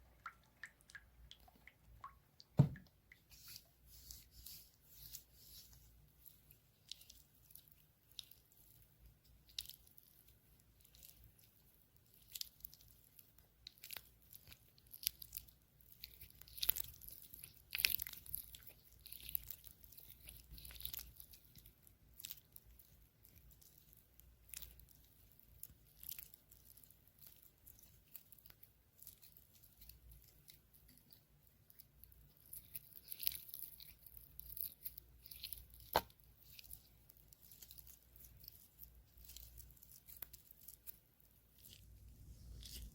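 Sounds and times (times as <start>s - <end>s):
soft crackles and taps: 35.8s - 36.8s.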